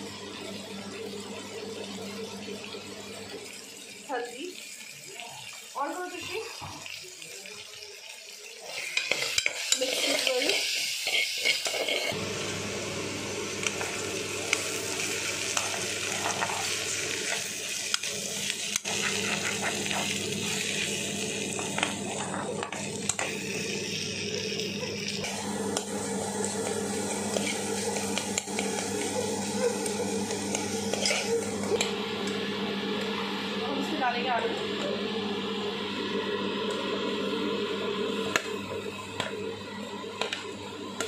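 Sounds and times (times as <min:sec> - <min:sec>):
okra sizzling in a pan: 0:01.5 - 0:34.8
metal spatula scraping a pan: 0:08.7 - 0:12.2, 0:30.9 - 0:31.4.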